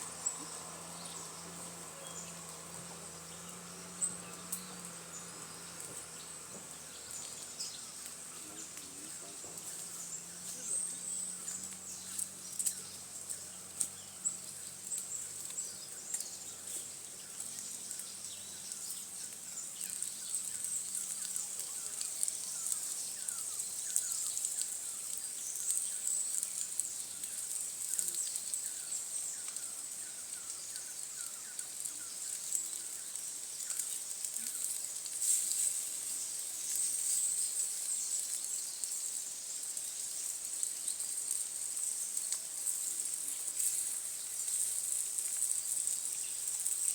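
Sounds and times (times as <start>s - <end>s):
insects droning: 0.0s - 46.9s
faint clicks: 10.5s - 46.9s.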